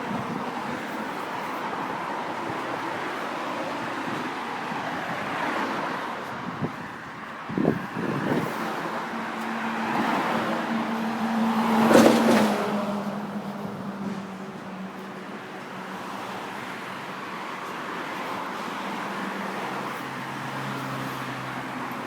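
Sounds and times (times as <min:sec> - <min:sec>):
road traffic: 0:00.0 - 0:22.0
car passing close: 0:07.5 - 0:14.7.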